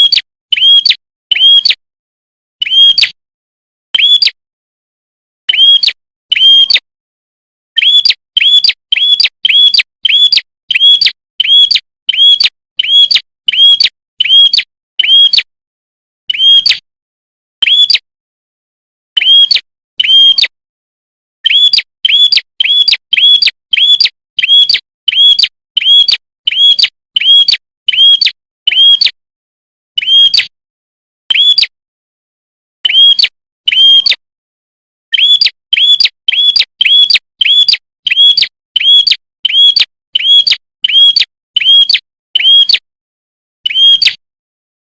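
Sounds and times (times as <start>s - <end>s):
bird chirping sharply: 4.0s - 4.4s, 5.5s - 6.8s, 7.8s - 15.4s, 16.3s - 16.8s, 17.6s - 18.1s, 21.4s - 29.1s, 30.0s - 30.4s, 31.3s - 31.7s, 32.8s - 34.2s, 35.1s - 42.8s, 43.6s - 44.2s.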